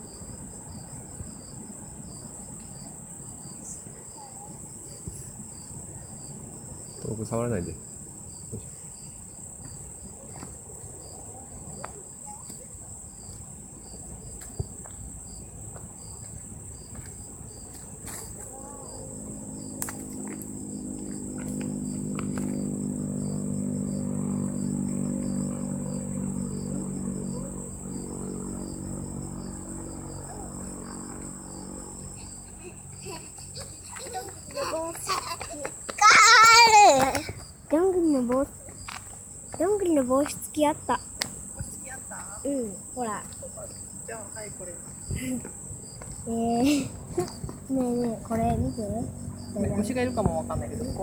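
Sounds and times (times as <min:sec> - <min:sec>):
insects buzzing: 0:00.0 - 0:51.0
pulsing insect call: 0:00.0 - 0:51.0
low mechanical drone: 0:18.4 - 0:34.6, 0:46.2 - 0:51.0.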